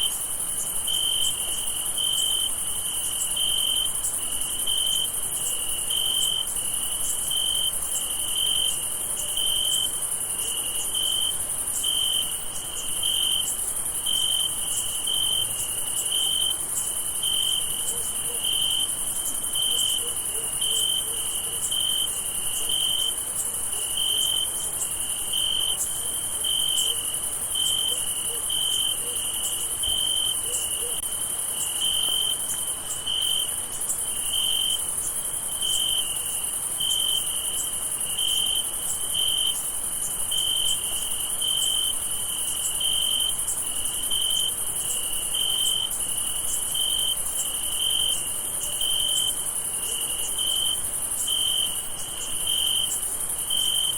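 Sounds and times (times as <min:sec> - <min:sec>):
cricket chirping: 0:00.0 - 0:53.9
high insect trill: 0:00.0 - 0:53.9.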